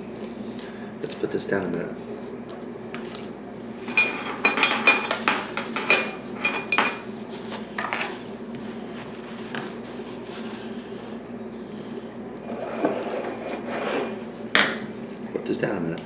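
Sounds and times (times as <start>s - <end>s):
spoon clinking against a bowl: 3.9s - 7.1s.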